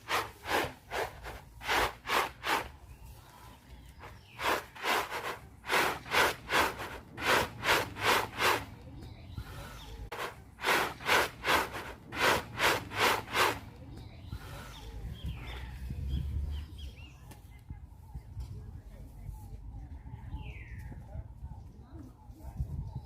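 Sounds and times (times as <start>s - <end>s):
horse chewing feed: 0.0s - 3.0s, 3.9s - 8.8s, 10.1s - 13.8s.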